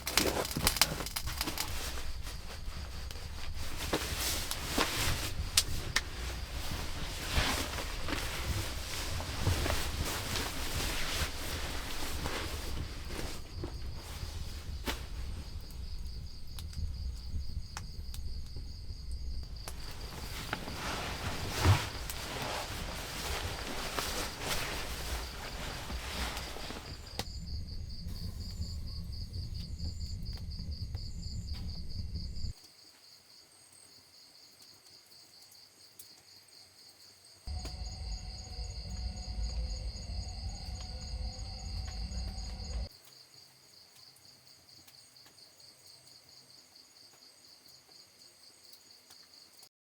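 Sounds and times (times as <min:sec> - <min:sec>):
insects chirring: 0:00.0 - 0:49.7
low rumbling noise: 0:00.4 - 0:32.5, 0:37.5 - 0:42.9.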